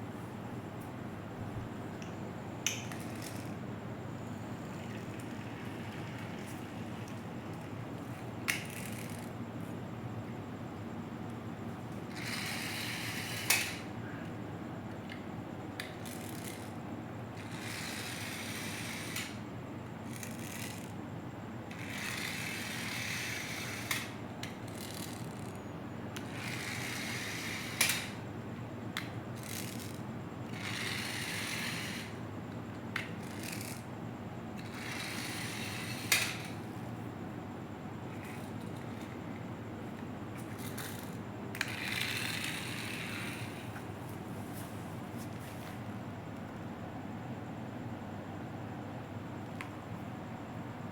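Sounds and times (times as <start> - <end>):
toy gear mechanism whirring: 2.6 - 3.6, 8.5 - 9.3, 12.1 - 13.8, 15.8 - 16.8, 17.4 - 19.4, 20.0 - 21.0, 21.7 - 25.6, 26.2 - 28.2, 29.0 - 32.2, 33.0 - 33.9, 34.6 - 36.6, 40.4 - 43.7.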